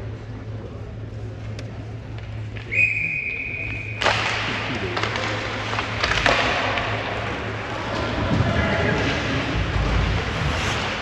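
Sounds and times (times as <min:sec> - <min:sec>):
loud wash of noise: 0:09.5 - 0:11.0.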